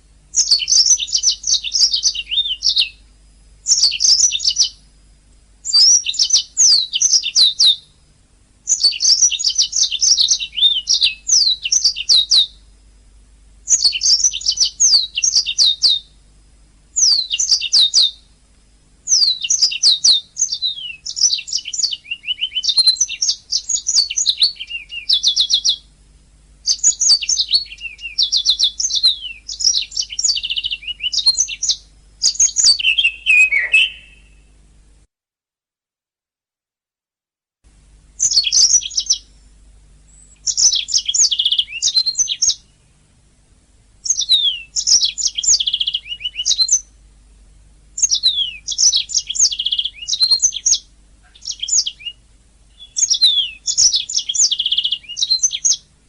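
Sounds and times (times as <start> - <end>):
canary singing: 0.3 - 3.0, 3.6 - 4.8, 5.6 - 8.0, 8.6 - 12.7, 13.6 - 16.2, 17.0 - 18.3, 19.0 - 25.9, 26.6 - 34.5, 38.2 - 39.5, 40.1 - 42.9, 44.0 - 47.0, 48.0 - 56.0.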